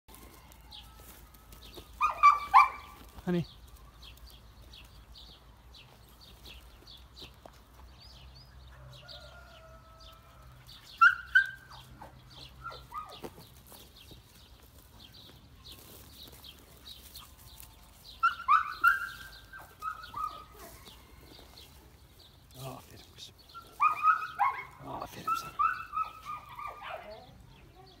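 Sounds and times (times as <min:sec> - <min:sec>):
small birds chirping: 0:00.3 - 0:28.0
falling bird calls: 0:08.8 - 0:28.0.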